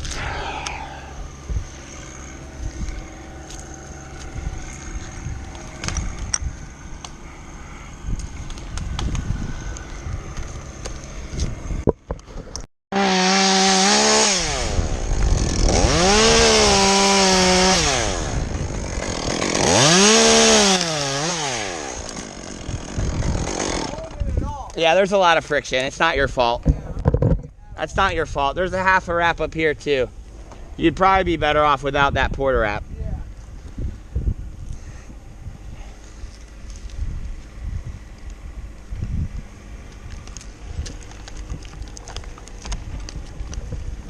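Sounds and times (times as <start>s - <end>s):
chainsaw cutting and revving: 0.1s - 11.7s, 12.9s - 24.2s
rustling and clicks: 39.9s - 43.9s.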